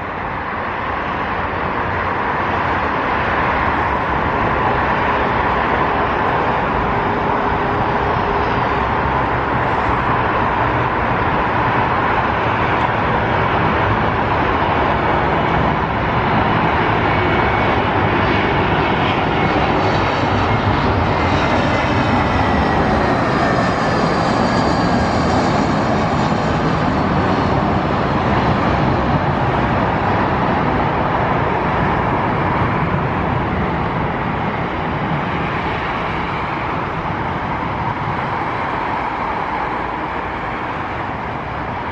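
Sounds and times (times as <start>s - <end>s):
jet engines roaring: 0.0s - 41.9s.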